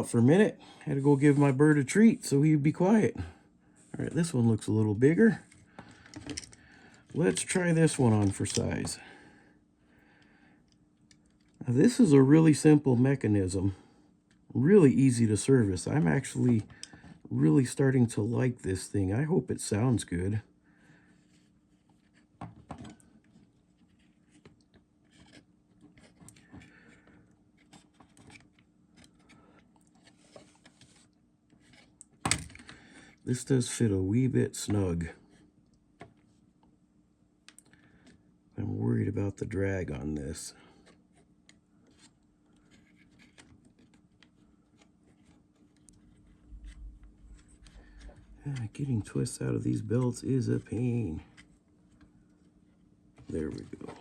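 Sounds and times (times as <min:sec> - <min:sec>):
low rumble: 0:46.4 - 0:48.4.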